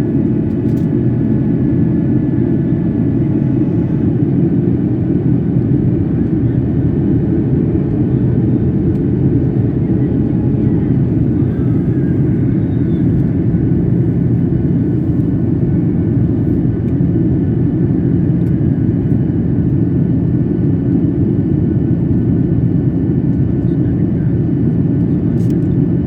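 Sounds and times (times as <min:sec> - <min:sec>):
airliner engines rumbling: 0:00.0 - 0:26.0.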